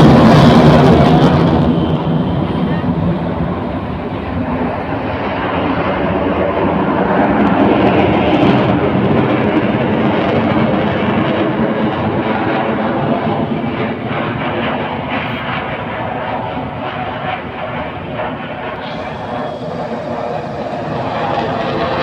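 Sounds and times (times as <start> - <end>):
military jet flying past: 0.0 - 22.0.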